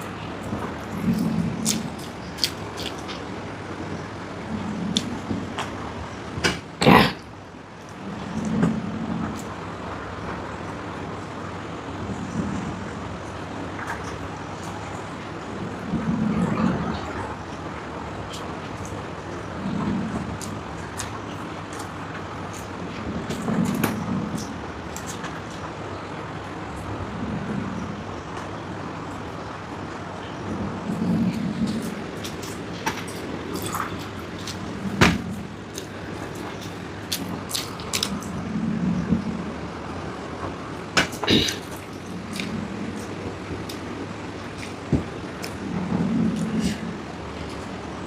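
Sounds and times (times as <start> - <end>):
faint chewing and mouth clicks: 0.0 - 3.3, 4.9 - 5.8, 18.3 - 25.6, 30.9 - 38.4, 41.1 - 45.6
steady background hum: 0.0 - 48.0.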